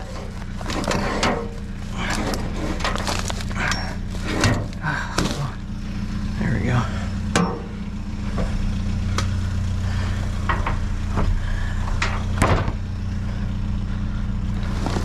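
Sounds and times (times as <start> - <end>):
vehicle engine idling: 0.0 - 15.0
sharp knocks and clanks: 7.3 - 8.6, 10.4 - 12.8.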